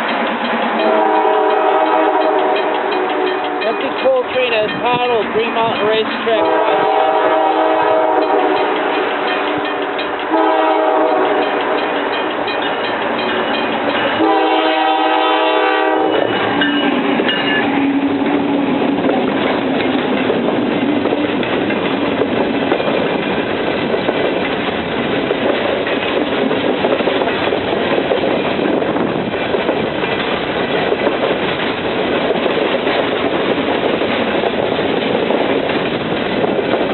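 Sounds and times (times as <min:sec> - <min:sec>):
locomotive engine drone: 0:00.0 - 0:36.9
rumble and clatter of rail cars: 0:00.0 - 0:36.9
diesel locomotive horn blasts: 0:00.8 - 0:03.7, 0:06.4 - 0:11.9, 0:14.2 - 0:17.0.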